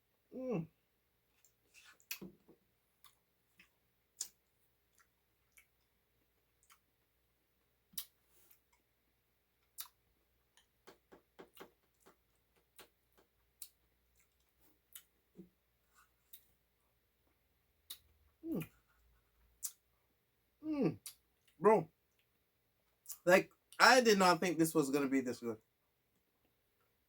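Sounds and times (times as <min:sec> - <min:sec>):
clicks and taps of eating ice cream: 0:10.6 - 0:13.8.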